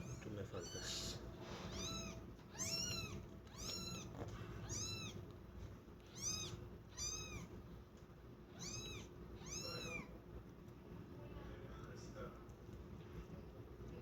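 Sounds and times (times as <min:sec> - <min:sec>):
kittens meowing: 0:00.5 - 0:05.3, 0:06.0 - 0:07.6, 0:08.5 - 0:10.2.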